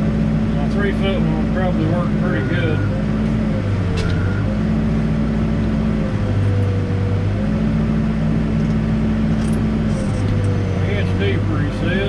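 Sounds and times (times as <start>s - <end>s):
diesel engine under load: 0.0s - 12.0s
hydraulic whine: 0.9s - 7.6s, 8.5s - 12.0s.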